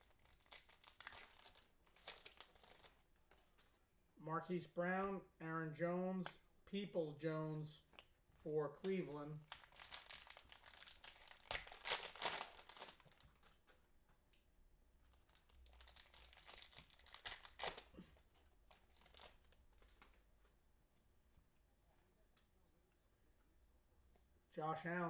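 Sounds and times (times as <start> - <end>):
cellophane wrapper crinkling and tearing: 0.0 - 3.8, 8.8 - 13.9, 15.0 - 20.3.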